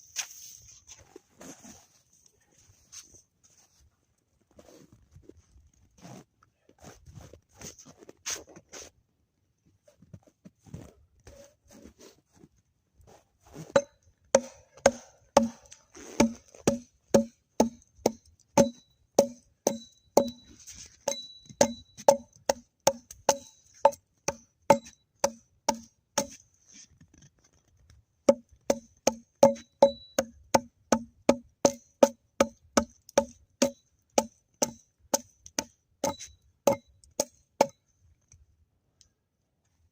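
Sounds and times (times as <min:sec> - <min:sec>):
sharp knocking on wood: 0:13.8 - 0:15.6, 0:16.2 - 0:20.4, 0:21.1 - 0:26.4, 0:28.3 - 0:34.8, 0:35.6 - 0:37.7.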